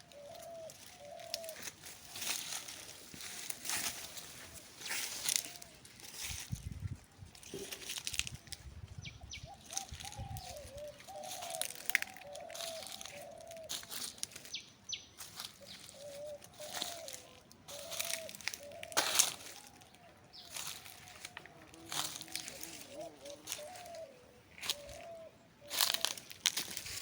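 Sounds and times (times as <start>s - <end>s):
bird warbling: 0.0s - 3.0s, 9.1s - 26.4s.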